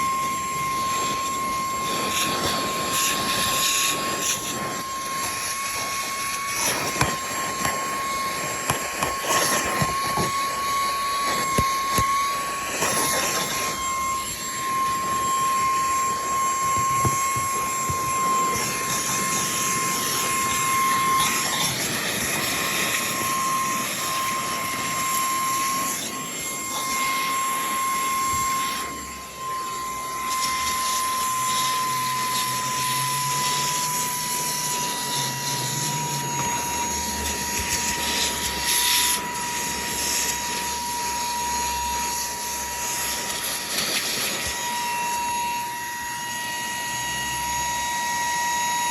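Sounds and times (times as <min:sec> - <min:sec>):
handheld vacuum cleaner running: 0:00.0 - 0:48.9.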